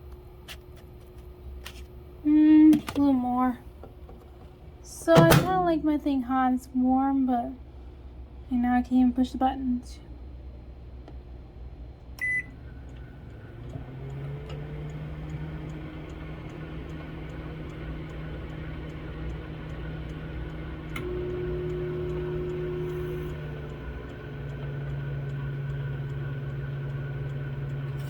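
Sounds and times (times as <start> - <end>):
microwave oven humming: 0.0 - 28.0
microwave click: 3.8 - 5.7, 12.2 - 28.0
microwave oven beep: 12.2 - 28.0.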